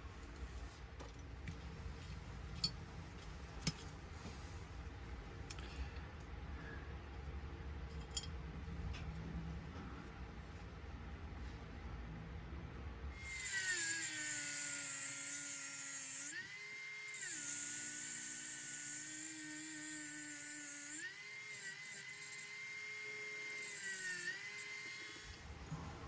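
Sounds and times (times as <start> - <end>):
rotary tool whining: 13.2 - 25.6.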